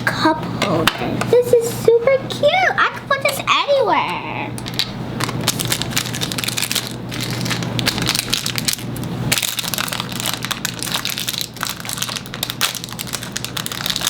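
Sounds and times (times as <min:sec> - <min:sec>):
plastic wrapping crinkling: 0:04.6 - 0:14.0.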